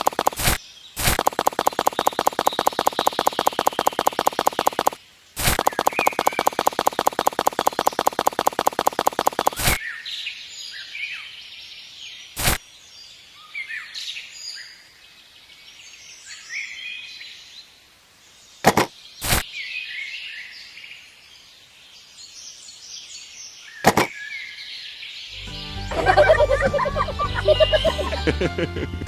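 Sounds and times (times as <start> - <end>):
sharp clicks: 0.0 - 9.8, 18.7 - 19.4, 23.9 - 24.1
birds chirping: 0.0 - 12.6, 18.5 - 28.5.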